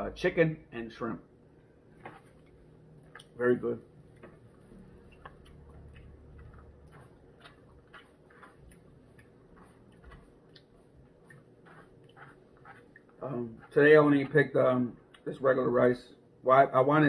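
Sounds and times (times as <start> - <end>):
faint chewing: 4.1 - 13.8.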